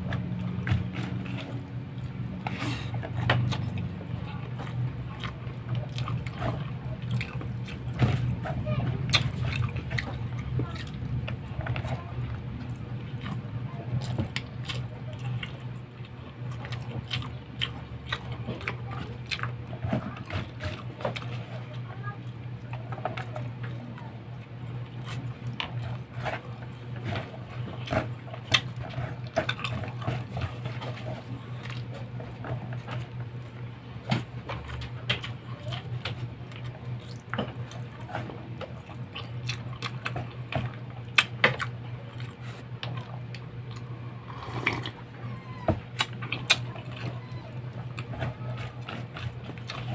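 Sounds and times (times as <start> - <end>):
steady low hum: 0.0 - 49.9
wet chewing: 0.0 - 49.9
lip smacks and mouth clicks: 45.9 - 46.7.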